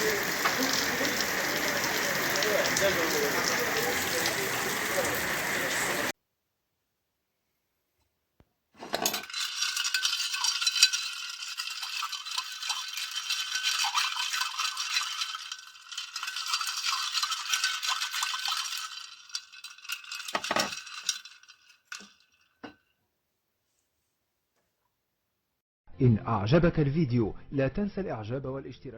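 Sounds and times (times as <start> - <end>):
crackling rattle of fine clicks: 9.2 - 22.6.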